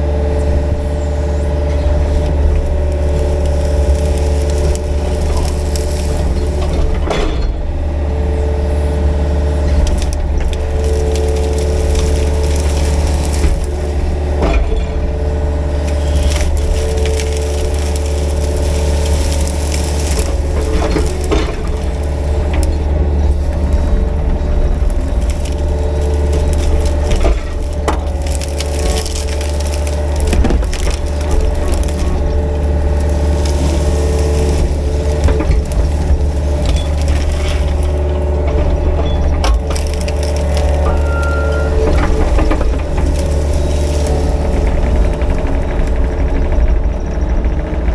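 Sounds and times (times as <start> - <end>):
brush and trees cracking: 0.0 - 47.9
excavator engine under load: 0.0 - 47.9
hydraulic whine: 0.0 - 47.9.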